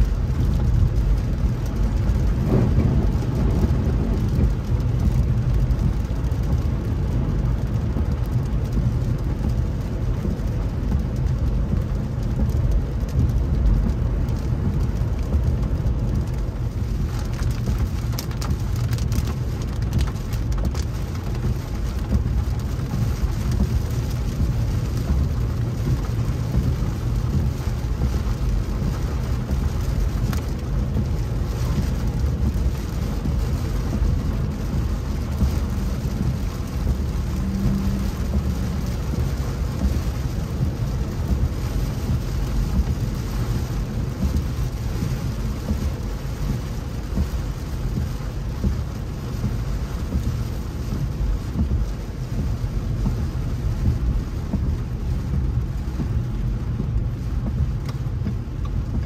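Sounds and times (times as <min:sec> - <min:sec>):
rain falling on a car: 0:00.0 - 0:59.0
tyres and engine rumble: 0:00.0 - 0:59.0.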